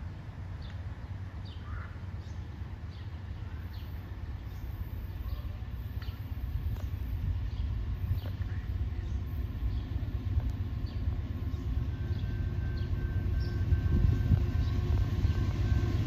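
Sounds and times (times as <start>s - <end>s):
diesel train rumble: 0.0s - 16.0s
birds chirping: 0.5s - 16.0s.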